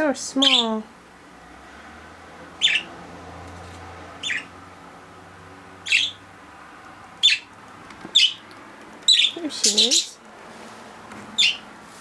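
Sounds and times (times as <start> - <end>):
budgerigar chirping calls: 0.4 - 0.8, 2.6 - 3.0, 4.2 - 4.6, 5.8 - 6.3, 7.2 - 7.5, 8.1 - 8.4, 9.1 - 10.2, 11.4 - 11.6.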